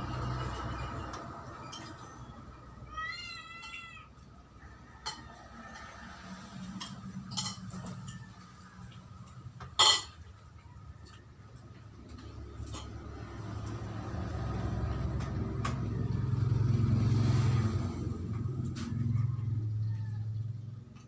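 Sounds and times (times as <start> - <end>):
cat meowing: 2.8 - 4.2, 19.8 - 20.4.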